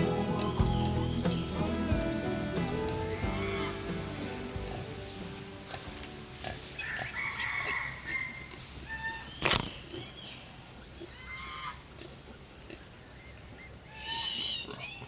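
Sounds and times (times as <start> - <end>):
animal squeals and chirps: 3.1 - 4.9, 11.1 - 11.8, 13.9 - 15.0.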